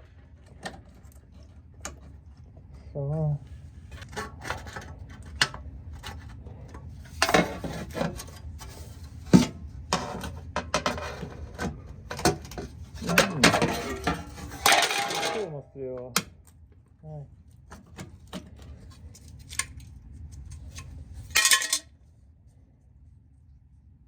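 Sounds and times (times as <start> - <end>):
metal scraping: 13.0 - 15.6
metal clinks and knocks: 21.2 - 21.9.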